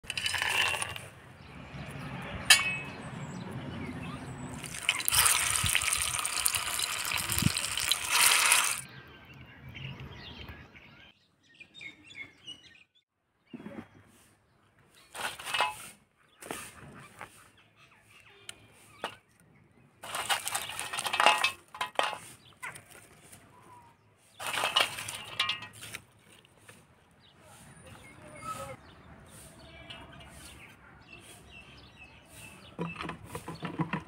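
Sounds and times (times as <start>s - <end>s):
food sizzling in oil: 4.6s - 8.8s
food splashing into pot of water: 4.6s - 8.8s.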